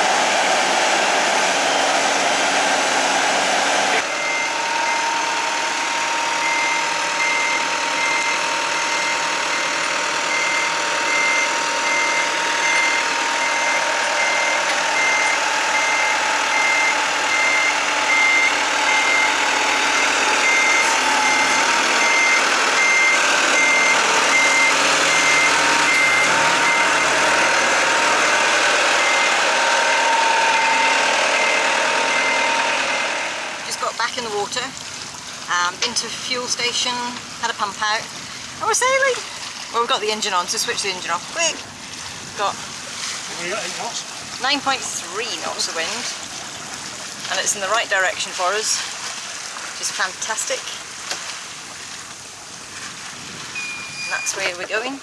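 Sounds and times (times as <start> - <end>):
boat hoist engine running: 0.0 - 55.0
warning beeper: 4.0 - 34.2, 53.6 - 54.7.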